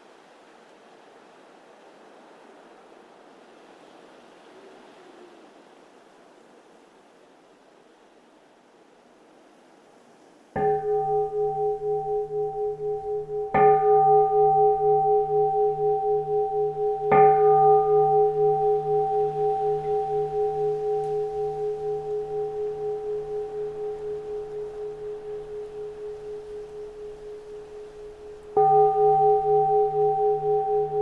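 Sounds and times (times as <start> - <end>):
temple bell ringing: 10.6 - 31.0.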